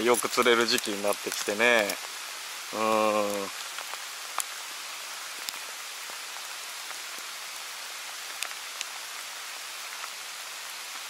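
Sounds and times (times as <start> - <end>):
rain drop ticks: 0.0 - 11.0
steady rain falling: 0.0 - 11.0.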